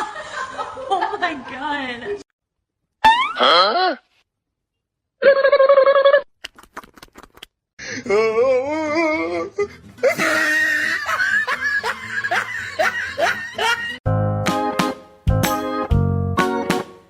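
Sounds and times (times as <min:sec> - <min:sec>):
laughter: 0:00.0 - 0:02.2, 0:05.2 - 0:06.3, 0:10.0 - 0:14.0
music: 0:09.1 - 0:17.0.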